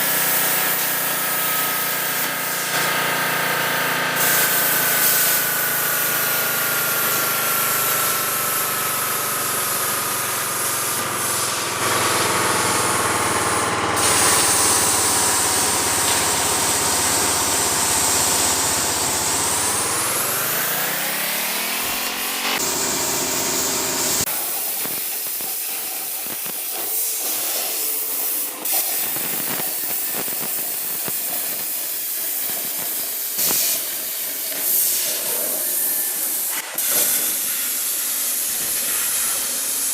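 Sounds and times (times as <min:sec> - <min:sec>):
machine motor whine: 0:04.2 - 0:28.2
cutting hiss on steel: 0:04.2 - 0:39.9.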